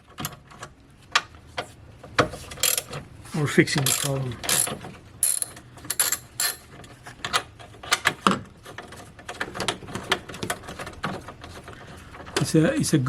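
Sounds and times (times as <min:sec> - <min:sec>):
hand ratchet clicking: 0:02.6 - 0:02.9, 0:03.8 - 0:06.6
metal tools clinking: 0:03.7 - 0:06.6.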